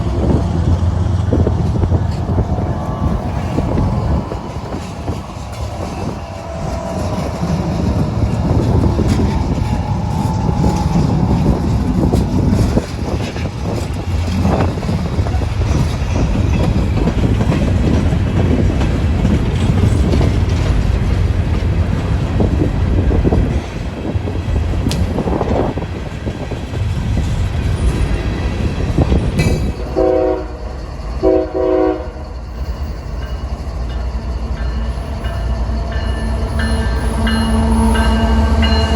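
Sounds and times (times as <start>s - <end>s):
diesel locomotives rumbling: 0.0s - 38.9s
locomotive air horn blasts: 29.9s - 30.6s, 31.2s - 32.2s.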